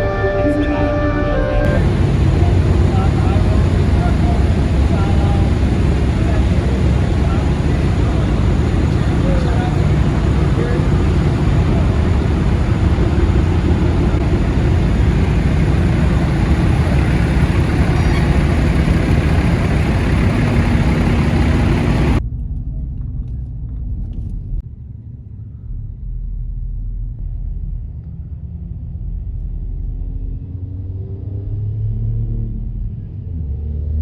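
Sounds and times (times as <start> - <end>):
engine pitch rising: 0.7 - 22.2
low vehicle rumble: 1.6 - 22.2
wind and road noise: 1.6 - 22.2.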